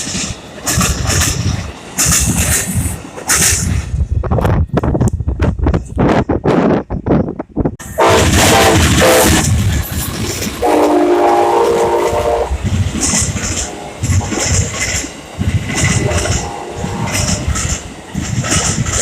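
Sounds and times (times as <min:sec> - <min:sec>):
train cars rumbling on rails: 0:00.0 - 0:19.0
train horn blasts: 0:07.8 - 0:09.6, 0:10.6 - 0:15.0, 0:15.8 - 0:17.7.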